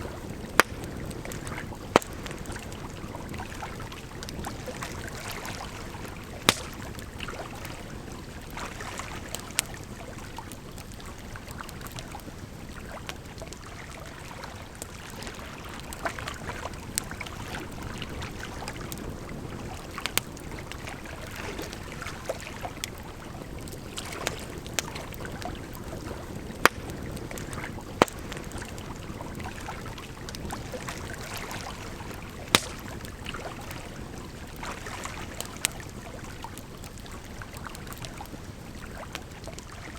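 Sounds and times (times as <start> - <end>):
campfire crackling and popping: 0.0 - 39.9
running water: 26.3 - 36.3.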